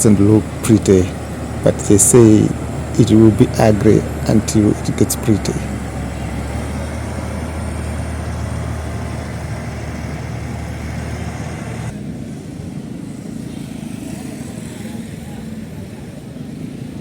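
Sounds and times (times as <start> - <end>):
road noise: 0.0 - 17.0
vehicle engines humming: 0.0 - 17.0.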